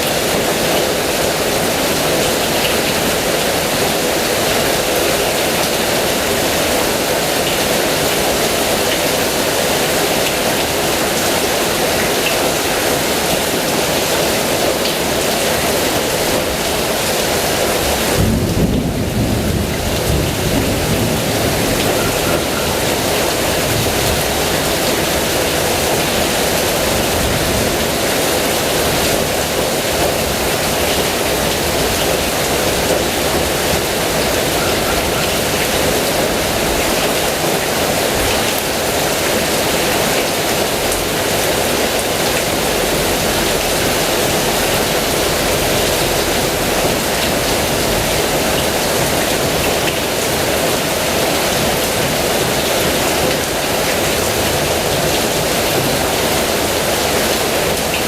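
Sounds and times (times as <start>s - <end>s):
heavy rain falling: 0.0s - 58.0s
low roll of thunder: 18.2s - 25.2s.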